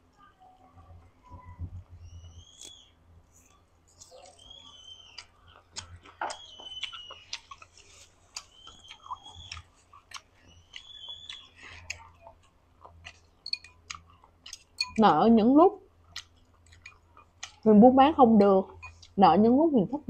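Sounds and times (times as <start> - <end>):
thin high whistle-like tone: 1.2 - 3.0, 4.0 - 5.2, 6.3 - 7.3
chewing and gnawing on bone: 3.4 - 15.0, 16.0 - 17.7
wet mouth clicks: 5.2 - 12.2.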